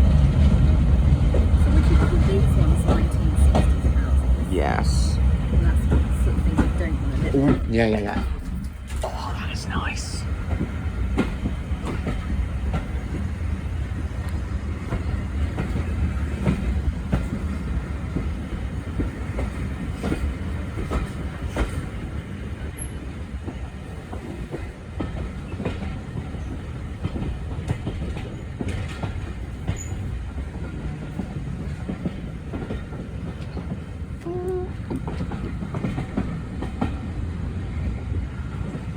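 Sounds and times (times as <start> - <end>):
railway carriage rumble: 0.0 - 38.9
wheels clicking over rail joints: 5.2 - 9.2, 10.4 - 37.4.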